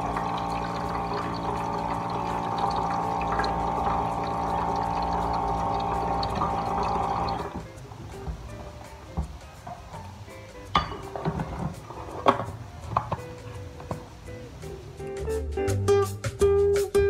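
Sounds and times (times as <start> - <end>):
hum: 0.0 - 7.6
water pouring: 0.0 - 13.2.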